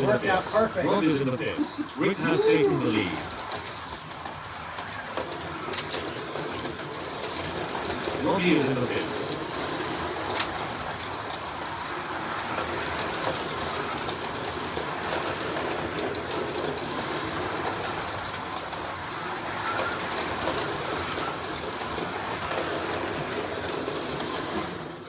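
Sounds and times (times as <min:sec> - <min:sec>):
slot car motors whirring: 0:00.0 - 0:03.7.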